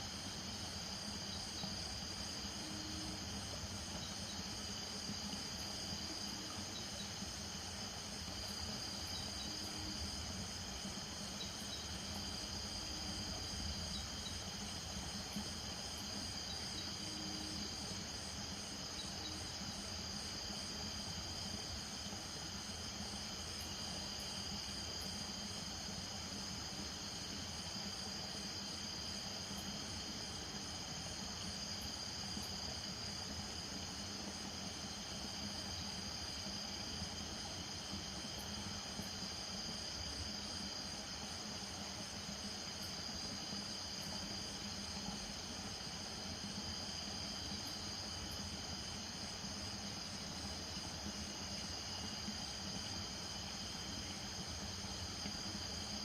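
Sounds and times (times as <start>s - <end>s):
crickets and insects trilling: 0.0s - 56.0s.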